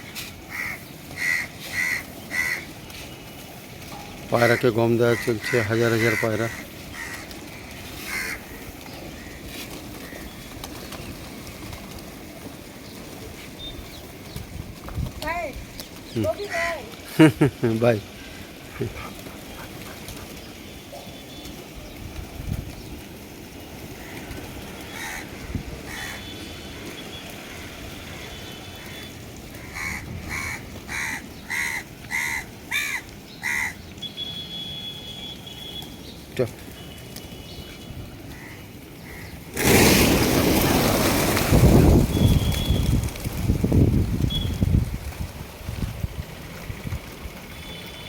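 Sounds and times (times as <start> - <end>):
crow cawing: 0.5 - 2.7, 4.5 - 8.6, 24.0 - 26.3, 27.4 - 33.8, 38.3 - 39.3
pigeons cooing: 18.4 - 21.5.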